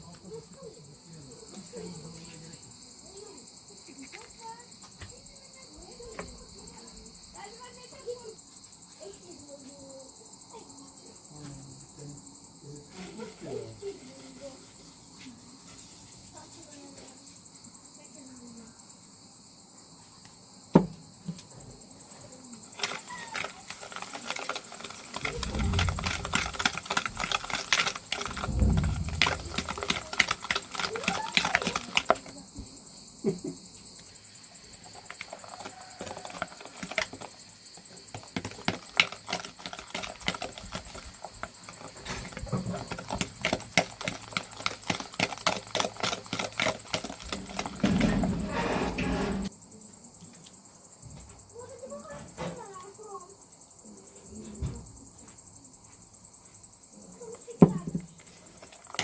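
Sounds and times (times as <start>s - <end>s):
insects chirring: 0.0s - 59.0s
dull knocks: 28.0s - 30.6s
utensils tapping against a bowl: 38.2s - 47.9s.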